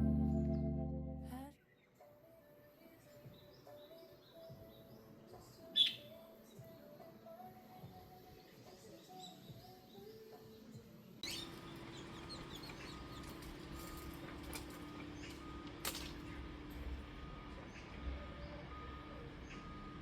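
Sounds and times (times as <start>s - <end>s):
soft held notes: 0.0s - 1.5s
steady low hum: 0.0s - 1.5s, 11.2s - 20.0s
birds chirping: 7.7s - 20.0s.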